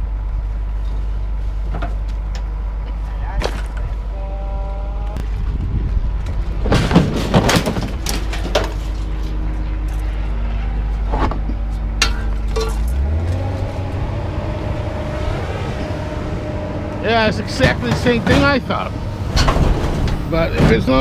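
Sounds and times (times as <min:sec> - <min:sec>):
engine running steadily: 0:00.0 - 0:21.0
scrap metal knocks and clanks: 0:06.6 - 0:10.2, 0:11.0 - 0:13.7, 0:17.3 - 0:21.0.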